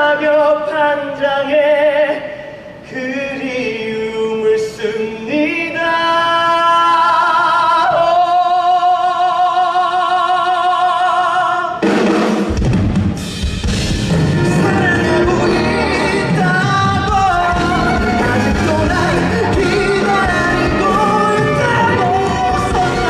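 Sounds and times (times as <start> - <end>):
pop band with drums: 11.7 - 23.0.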